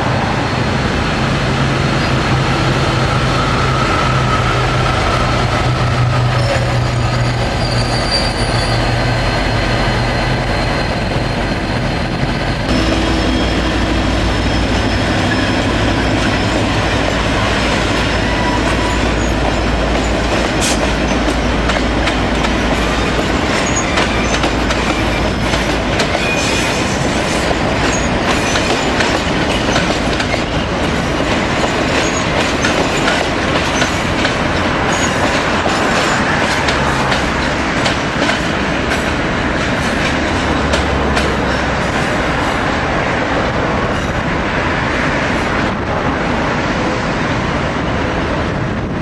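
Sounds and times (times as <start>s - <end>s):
wheel squeal: 6.3s - 16.7s
diesel engine low drone: 12.7s - 17.4s.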